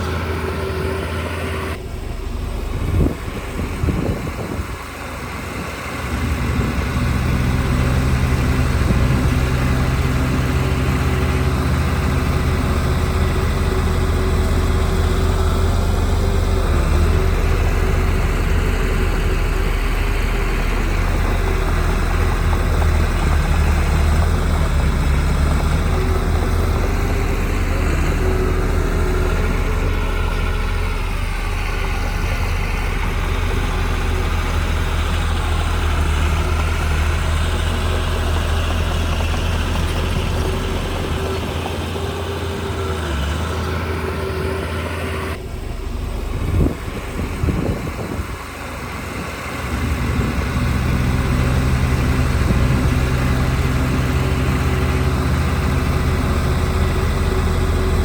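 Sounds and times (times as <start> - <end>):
heavy machinery diesel engine: 0.0 - 58.0.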